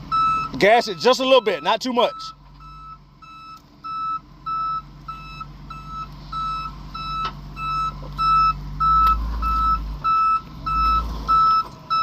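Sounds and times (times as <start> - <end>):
low engine rumble: 0.0 - 12.0
reversing alarm beeping: 0.1 - 12.0.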